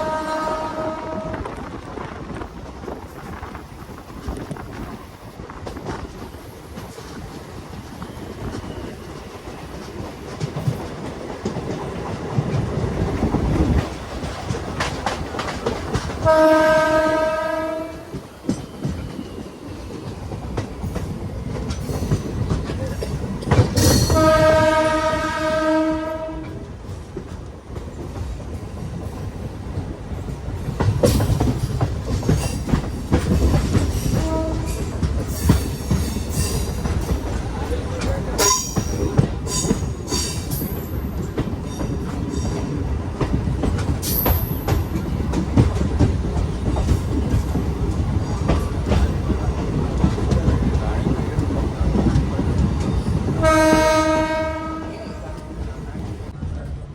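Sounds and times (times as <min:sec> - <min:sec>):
train horn: 0:00.0 - 0:01.6, 0:16.2 - 0:18.2, 0:23.8 - 0:26.7, 0:34.1 - 0:35.0, 0:53.3 - 0:55.7
train rumbling with wheel clatter: 0:00.0 - 0:56.9.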